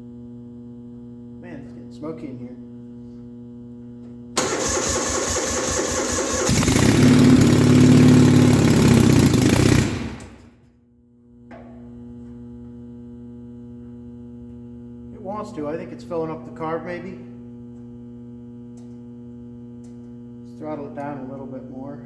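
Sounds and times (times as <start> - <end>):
electric starter cranking engine: 4.4 - 10.5
engine running: 4.4 - 10.5.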